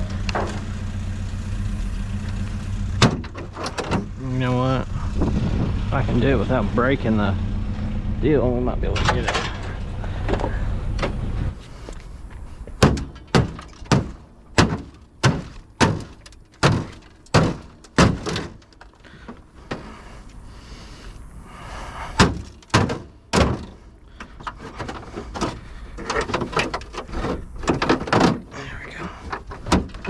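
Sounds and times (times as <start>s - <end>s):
sharp knocks and thunks: 0.0s - 0.7s, 3.0s - 4.2s, 12.6s - 20.0s, 22.1s - 30.0s.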